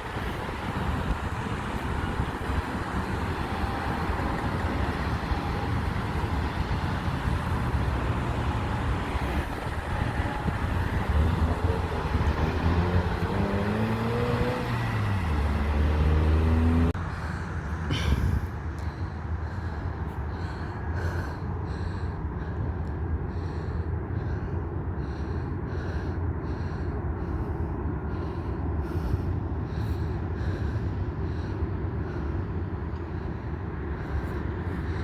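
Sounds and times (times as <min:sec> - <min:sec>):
vehicle passing by: 0:00.0 - 0:21.0.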